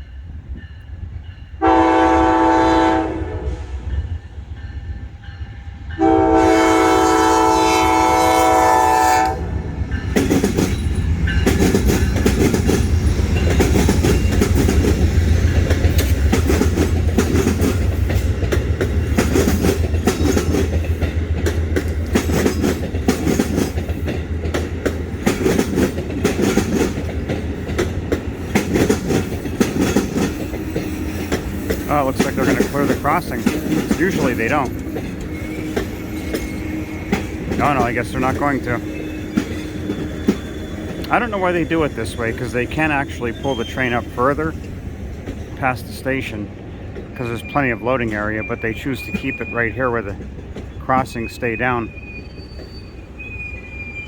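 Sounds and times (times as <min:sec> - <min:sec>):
deep train engine rumble: 0:00.0 - 0:54.0
locomotive horn chord: 0:01.6 - 0:03.9, 0:06.0 - 0:09.8
wheels clicking over rail joints: 0:09.9 - 0:51.0.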